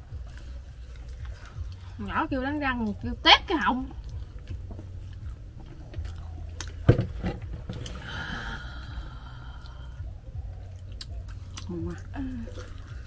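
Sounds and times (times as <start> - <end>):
people chewing crispy food: 0.0 - 6.9, 7.7 - 13.0
short thump: 6.8 - 8.0.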